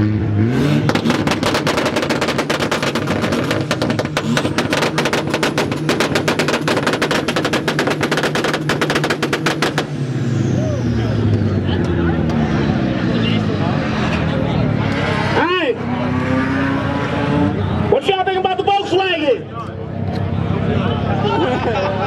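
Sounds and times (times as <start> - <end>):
car engine at high revs: 0.0 - 18.7
exhaust pops and cracks: 0.9 - 9.9.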